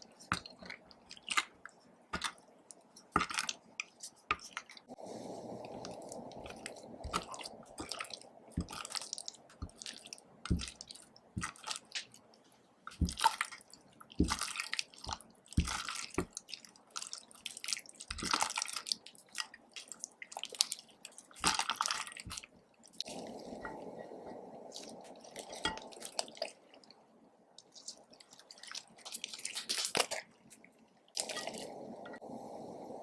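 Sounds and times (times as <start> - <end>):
slime squelching: 0.0 - 5.0, 5.7 - 23.8, 24.5 - 32.2
steady hiss: 4.8 - 8.5, 31.2 - 33.0.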